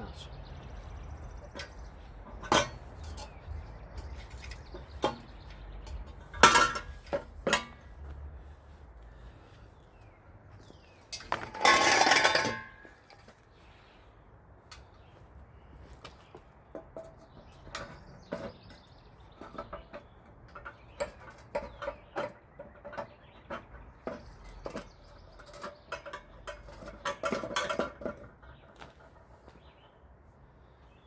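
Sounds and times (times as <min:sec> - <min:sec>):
metal pipe parts clinking: 0:01.5 - 0:08.1, 0:11.1 - 0:13.3, 0:19.4 - 0:29.3.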